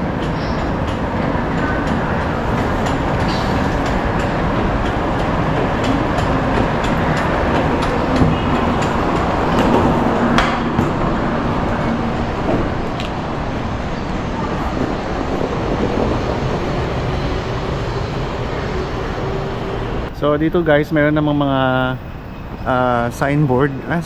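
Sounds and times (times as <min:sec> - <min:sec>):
train rumbling: 0:00.0 - 0:24.0
sharp knocks: 0:02.8 - 0:11.4.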